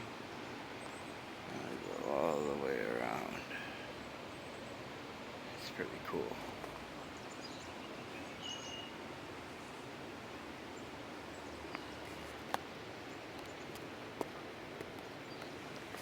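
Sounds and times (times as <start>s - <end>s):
outdoor background noise: 0.0s - 16.0s
high bird chirp: 7.2s - 9.0s.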